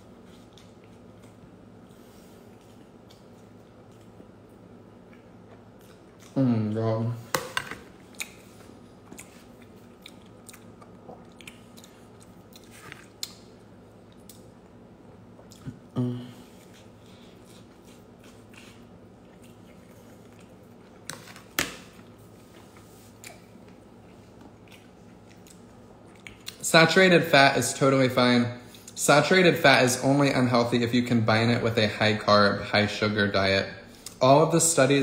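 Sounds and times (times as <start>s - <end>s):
chewing and biting sandwich: 8.0s - 26.6s
person humming: 15.8s - 16.5s.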